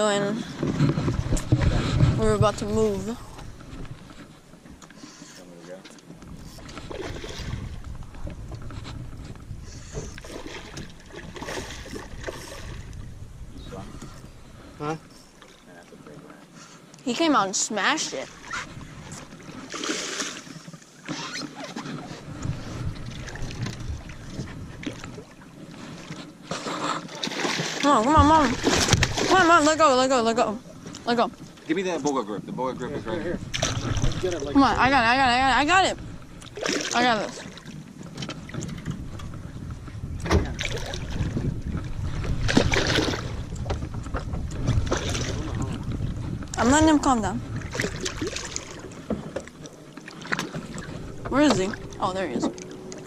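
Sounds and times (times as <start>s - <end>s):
wind on microphone: 0.0s - 4.4s, 6.2s - 14.9s, 21.9s - 26.2s, 32.8s - 49.5s, 50.3s - 53.0s
water around a boat: 0.0s - 53.0s.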